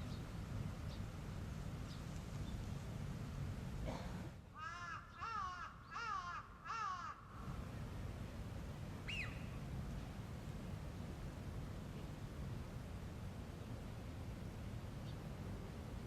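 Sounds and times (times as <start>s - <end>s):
crow cawing: 4.6s - 7.3s.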